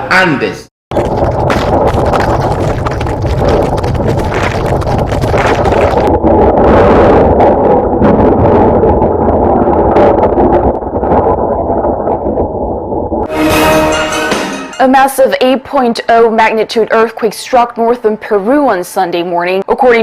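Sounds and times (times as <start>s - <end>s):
earthquake rumbling and rattling: 0.9s - 13.3s.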